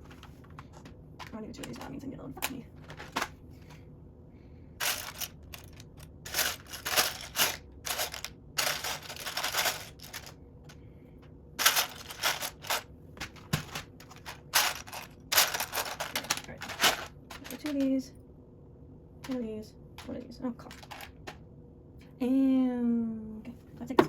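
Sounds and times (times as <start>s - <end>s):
plastic bricks clattering: 2.8s - 3.3s, 4.8s - 10.4s, 11.6s - 17.8s, 20.7s - 21.4s.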